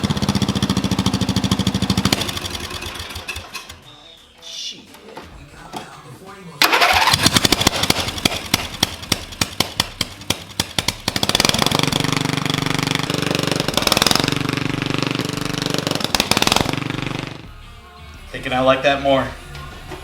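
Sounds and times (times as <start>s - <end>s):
mower engine popping loudly: 0.0s - 3.7s, 6.6s - 17.4s.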